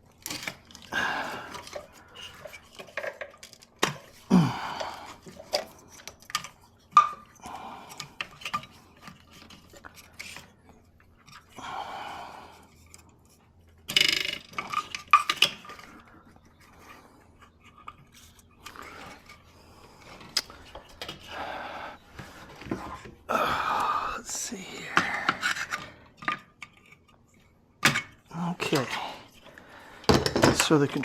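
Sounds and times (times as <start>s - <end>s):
tools and parts clinking: 0.0s - 11.6s, 12.6s - 21.4s, 24.4s - 31.0s.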